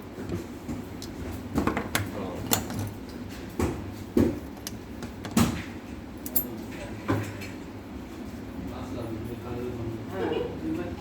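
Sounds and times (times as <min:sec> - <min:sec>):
metal tools knocking and clinking: 0:06.2 - 0:06.6.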